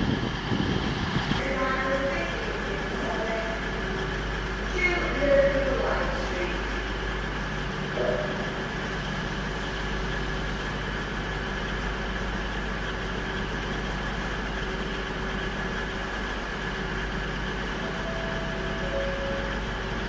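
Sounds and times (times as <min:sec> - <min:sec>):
large vehicle engine idling: 0:00.0 - 0:20.0
faint high whining tones: 0:17.7 - 0:20.0.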